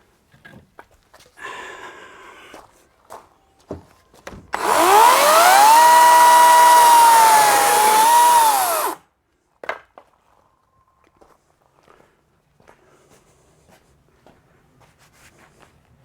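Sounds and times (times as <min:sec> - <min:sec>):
chainsaw motor whining: 0:04.6 - 0:09.0.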